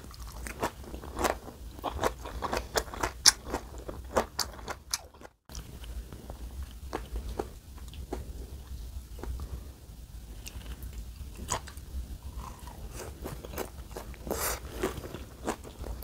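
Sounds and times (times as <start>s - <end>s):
crunchy chewing of raw vegetables: 0.0s - 8.3s, 10.4s - 16.0s.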